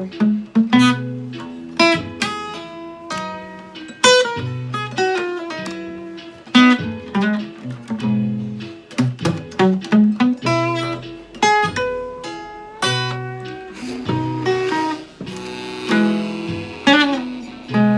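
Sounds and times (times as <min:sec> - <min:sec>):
blues guitar: 0:00.0 - 0:17.9
low bass notes: 0:12.9 - 0:17.9.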